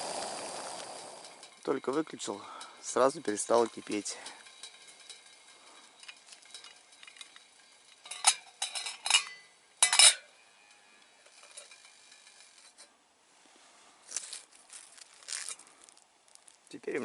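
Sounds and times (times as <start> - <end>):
metal cookware clinking: 1.2 - 10.4, 11.1 - 12.9.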